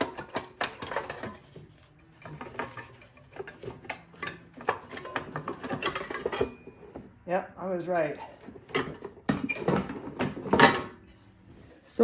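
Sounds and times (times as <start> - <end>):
metal engine parts clinking: 0.0 - 6.9.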